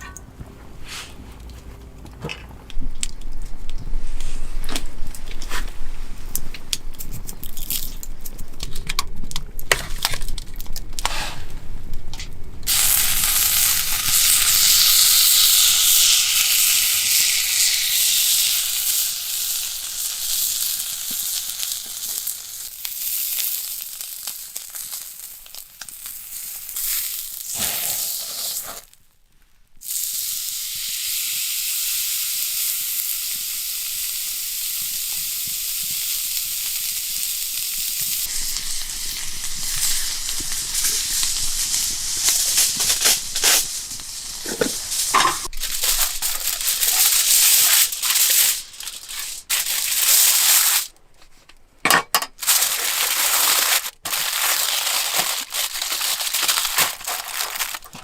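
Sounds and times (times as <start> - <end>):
beef sizzling loudly: 12.7 - 29.0, 29.8 - 50.9, 52.4 - 58.0.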